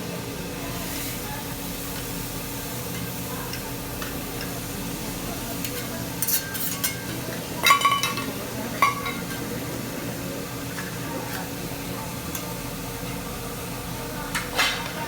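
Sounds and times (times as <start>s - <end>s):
tableware clinking: 5.6s - 9.6s.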